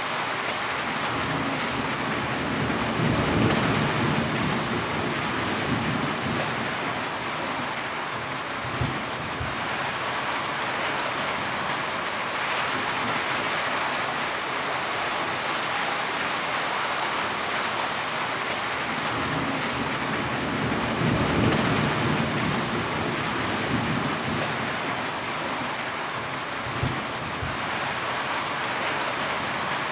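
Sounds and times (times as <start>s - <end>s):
heavy rain falling: 0.0s - 29.9s
low rumble of thunder: 1.1s - 7.2s, 19.0s - 25.2s, 26.6s - 27.6s.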